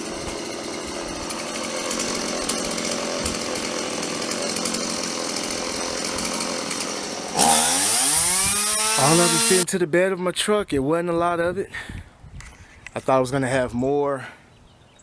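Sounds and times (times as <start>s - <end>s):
chainsaw running: 0.0s - 9.7s.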